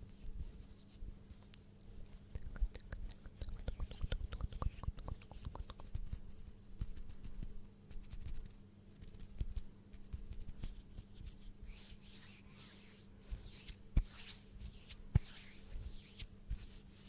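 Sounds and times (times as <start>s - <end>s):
faint microphone hum: 0.0s - 17.0s
wet mouth clicks and smacks: 1.5s - 6.0s.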